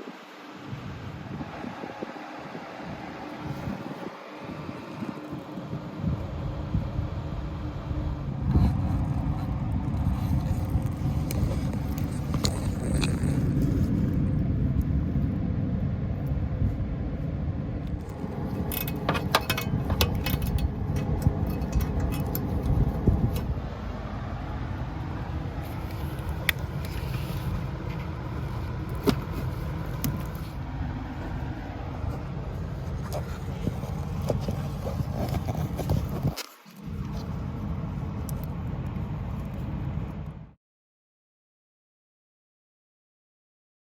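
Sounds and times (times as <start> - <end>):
low rumble: 6.0 - 36.3
metallic clinks and scrapes: 18.0 - 23.5.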